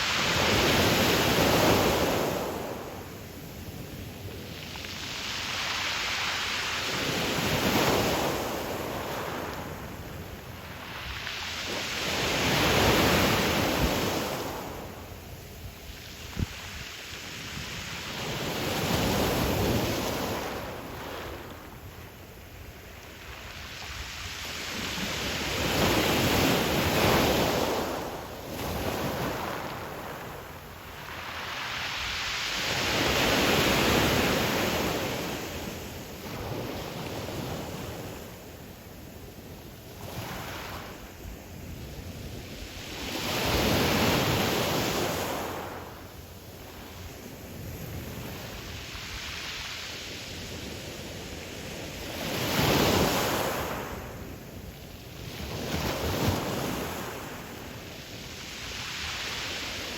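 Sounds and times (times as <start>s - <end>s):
waves breaking on pebble beach: 3.7s - 14.8s, 23.4s - 38.2s.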